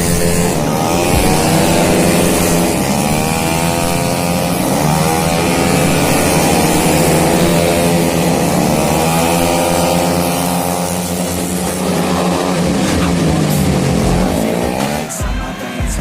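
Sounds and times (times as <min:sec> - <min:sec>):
scooter engines revving high: 0:00.0 - 0:15.7.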